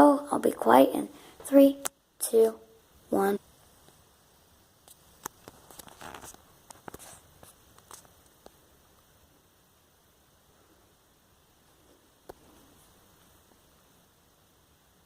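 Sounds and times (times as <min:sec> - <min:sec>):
soft rustles: 0:04.9 - 0:08.6.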